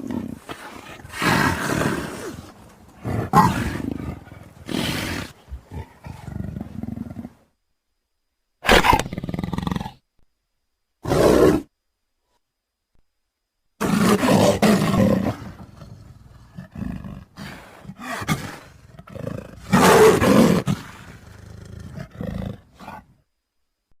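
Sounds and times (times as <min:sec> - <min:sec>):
leopard grunts: 0:00.0 - 0:07.4, 0:13.8 - 0:23.1
leopard roaring: 0:00.0 - 0:07.4, 0:11.0 - 0:11.7, 0:13.8 - 0:23.2.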